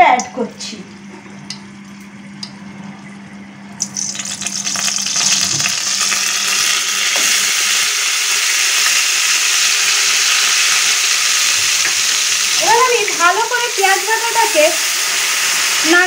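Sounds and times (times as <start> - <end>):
paste sizzling in hot oil: 3.8 - 16.0.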